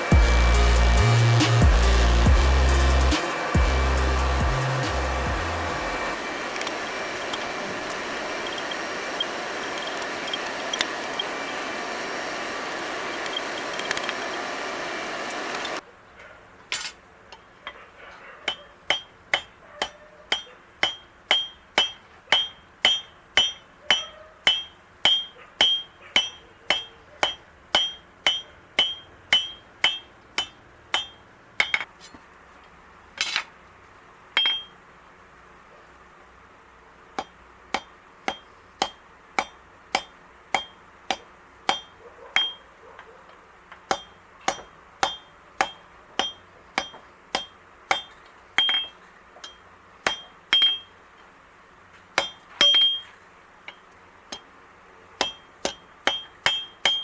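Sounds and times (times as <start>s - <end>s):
steady rushing noise: 0.0s - 15.8s
hammer striking steel on anvil: 18.5s - 31.9s, 34.4s - 34.8s, 37.2s - 42.6s, 43.8s - 51.0s, 52.2s - 53.1s, 53.7s - 54.5s, 55.2s - 57.0s.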